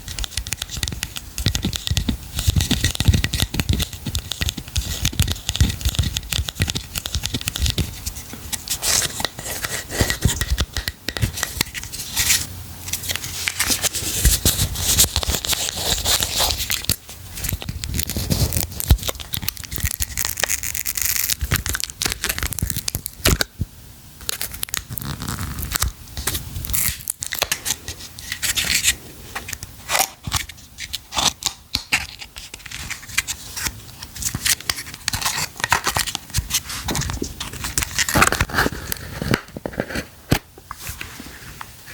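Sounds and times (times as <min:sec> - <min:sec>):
packaging being torn and crinkled: 0:13.5 - 0:23.5, 0:24.2 - 0:28.9, 0:29.9 - 0:40.4.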